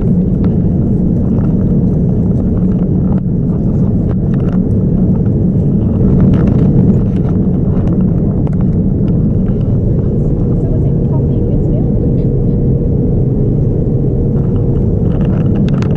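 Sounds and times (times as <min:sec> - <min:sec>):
light clicks and rattles: 0:00.0 - 0:11.2, 0:14.4 - 0:15.9
airliner cabin roar: 0:00.0 - 0:15.9
faint steady hum: 0:00.0 - 0:15.9.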